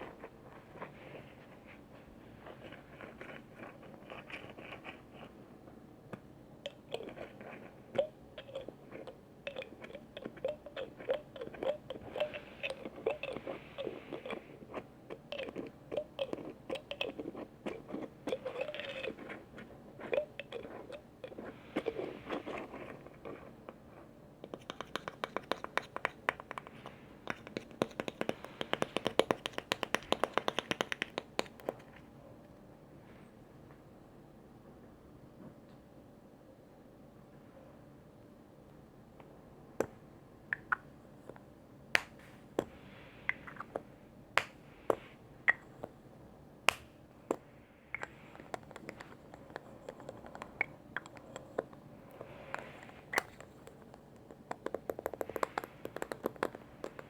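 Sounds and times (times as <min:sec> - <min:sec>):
container lids clicking and scratching: 0:02.4 - 0:05.4, 0:06.7 - 0:23.8, 0:24.4 - 0:32.0, 0:43.3 - 0:44.5, 0:48.0 - 0:57.0.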